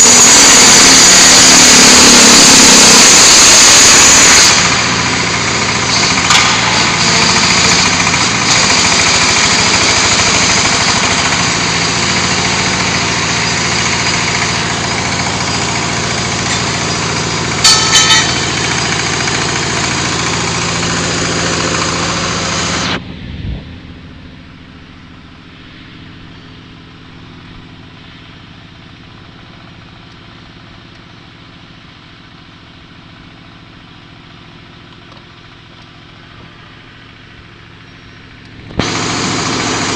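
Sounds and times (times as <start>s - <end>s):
diesel engine running: 0.0s - 39.9s
metal clanks: 5.8s - 7.2s, 15.5s - 20.1s
low hum: 14.4s - 29.6s.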